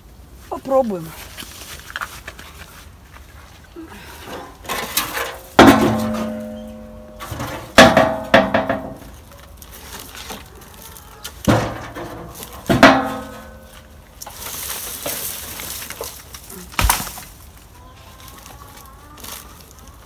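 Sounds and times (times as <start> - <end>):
firewood knocking with ringing: 5.6 - 9.1.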